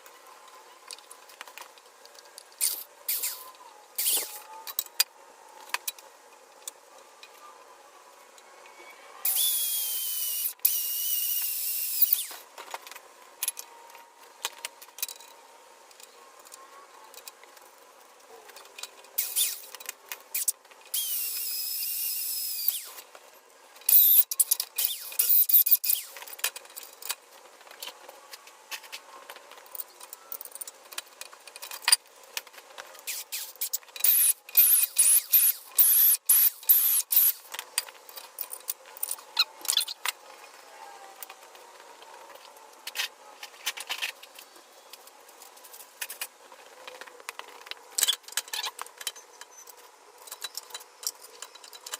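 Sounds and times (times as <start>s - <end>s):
power tool whine: 8.9s - 12.4s, 20.4s - 23.0s, 34.0s - 37.4s.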